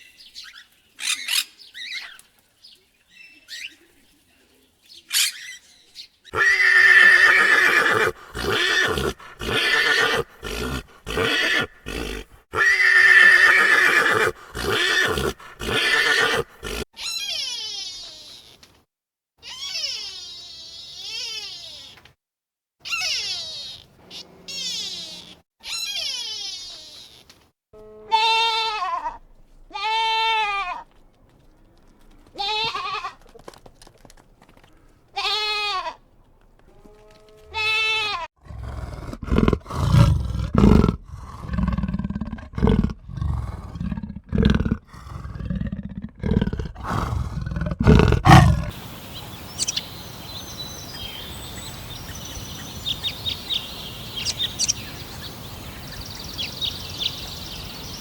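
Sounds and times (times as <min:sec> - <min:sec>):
birds chirping: 0:00.0 - 0:12.4, 0:13.1 - 0:16.8, 0:48.2 - 0:58.0
drawn-out bleats: 0:06.3 - 0:16.8, 0:27.8 - 0:30.9, 0:32.3 - 0:33.3, 0:35.2 - 0:36.0, 0:36.7 - 0:38.3, 0:48.2 - 0:58.0
lion roaring: 0:06.4 - 0:16.8, 0:38.4 - 0:51.1
steady outdoor hiss: 0:47.9 - 0:58.0.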